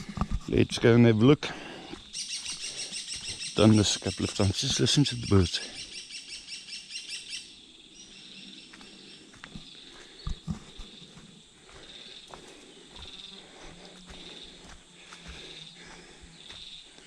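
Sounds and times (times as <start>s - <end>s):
bird chattering trill: 2.1s - 8.6s.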